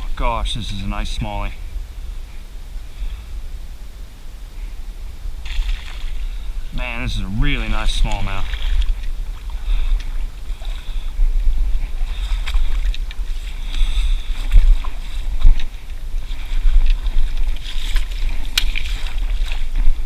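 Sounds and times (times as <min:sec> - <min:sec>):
wind rumble on microphone: 0:00.0 - 0:20.0
water sloshing and splashing: 0:05.4 - 0:20.0.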